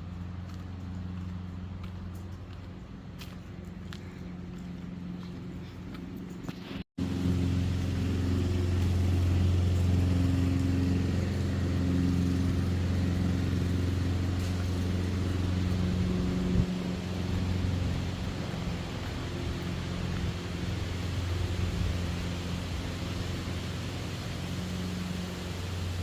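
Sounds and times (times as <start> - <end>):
vehicle hum: 0.0 - 26.0.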